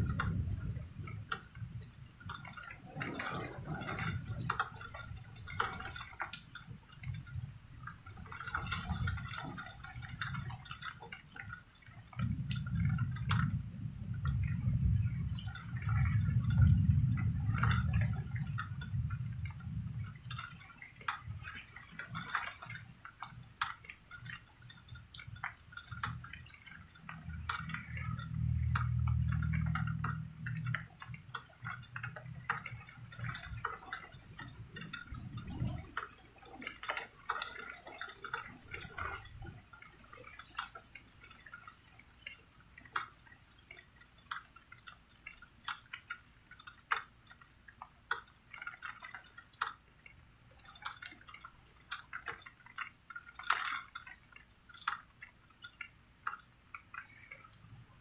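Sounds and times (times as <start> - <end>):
rain dripping: 0.0 - 58.0
thunder rumbling: 12.3 - 20.3.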